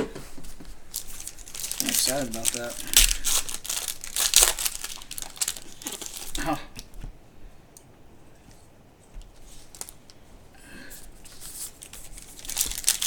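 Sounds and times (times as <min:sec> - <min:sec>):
cards rustling: 0:00.3 - 0:07.0, 0:11.0 - 0:13.0
foil wrapper crinkling: 0:00.5 - 0:07.0, 0:09.5 - 0:10.2, 0:11.0 - 0:13.0.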